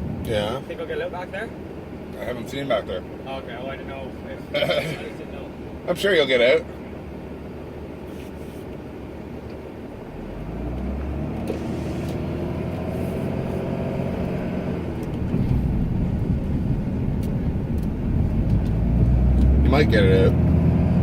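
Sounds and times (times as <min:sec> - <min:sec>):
pickup engine revving: 0:10.0 - 0:21.0.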